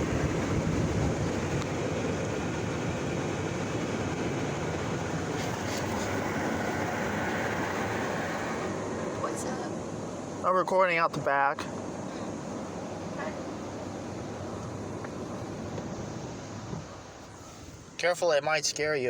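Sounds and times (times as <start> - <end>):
high-pressure water jets spraying: 4.4 - 11.4.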